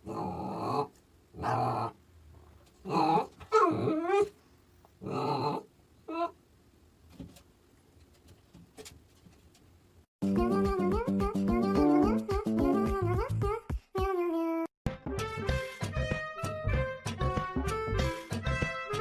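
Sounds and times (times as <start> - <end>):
dog growling: 0.0 - 2.0, 2.8 - 4.4, 5.0 - 6.4.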